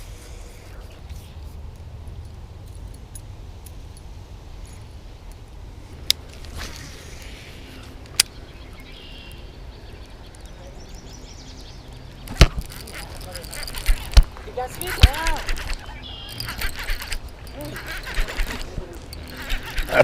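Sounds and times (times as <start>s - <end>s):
sharp clicks: 12.2s - 20.0s.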